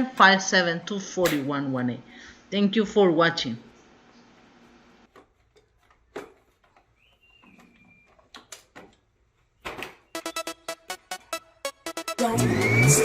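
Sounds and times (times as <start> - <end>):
music with fast beat: 10.2 - 13.0.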